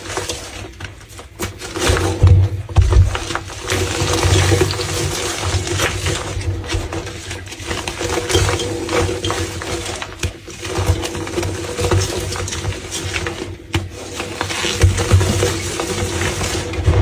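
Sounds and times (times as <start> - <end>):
brittle material crunching: 0.0 - 17.0
low hum: 2.2 - 3.2, 16.8 - 17.0.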